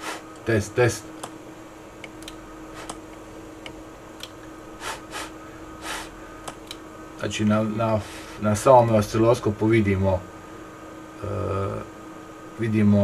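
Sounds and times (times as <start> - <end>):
breathy puffs of hiss: 0.0 - 0.3, 4.8 - 6.4, 8.0 - 8.4
electrical hum: 0.0 - 13.0.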